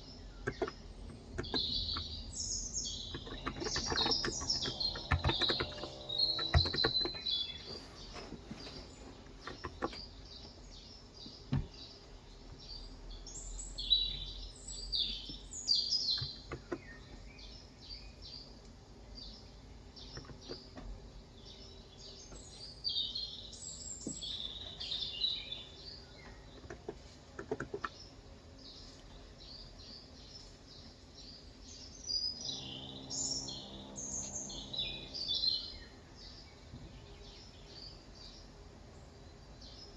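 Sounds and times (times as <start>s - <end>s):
small birds chirping: 0.0s - 39.9s
keyboard keystrokes: 0.4s - 2.1s, 3.1s - 7.4s.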